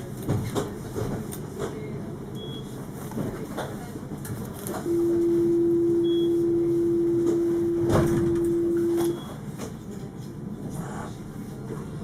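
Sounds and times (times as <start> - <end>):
tram warning beep: 2.3 - 2.8, 4.8 - 9.4
low running rumble: 4.9 - 9.2.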